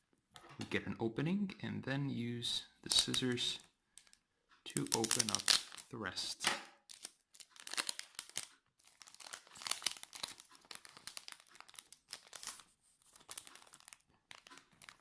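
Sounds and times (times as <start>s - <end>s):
foil wrapper crinkling: 4.8s - 6.0s, 6.8s - 15.0s.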